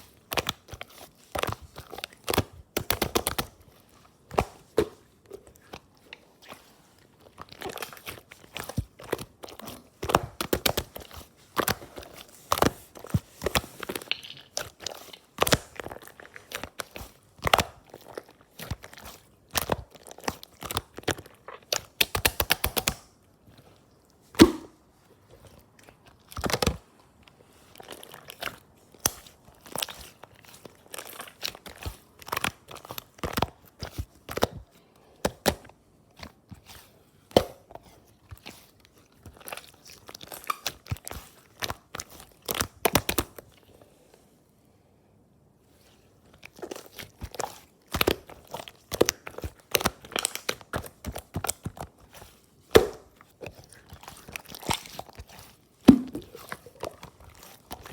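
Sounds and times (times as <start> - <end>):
slime squished by hand: 0.1 - 27.0, 45.8 - 57.9.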